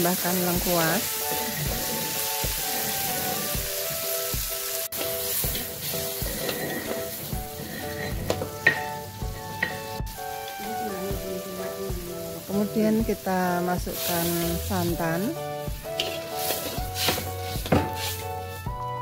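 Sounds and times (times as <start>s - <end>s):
background music: 0.0s - 19.0s
food sizzling in hot oil: 0.0s - 19.0s
spatula scraping a wok: 1.0s - 4.2s, 4.9s - 10.5s, 15.8s - 18.7s.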